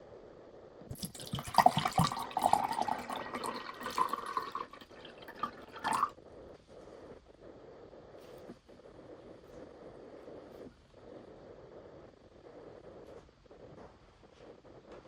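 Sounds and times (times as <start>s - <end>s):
water running and splashing: 0.9s - 6.1s.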